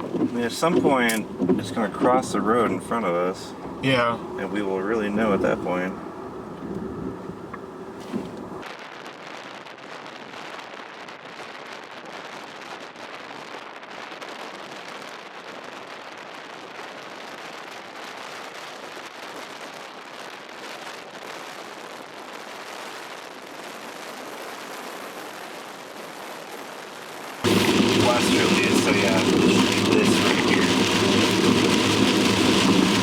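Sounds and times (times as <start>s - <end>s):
heavy rain on a vehicle: 0.0s - 5.8s, 12.5s - 33.0s.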